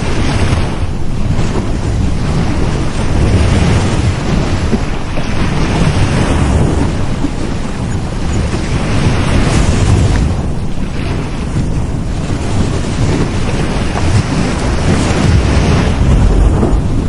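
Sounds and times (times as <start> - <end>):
ocean waves breaking on beach: 0.0 - 17.0.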